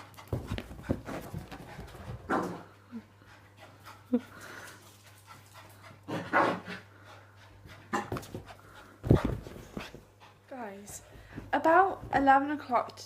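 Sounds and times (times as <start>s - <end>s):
puppy panting: 3.0s - 11.4s.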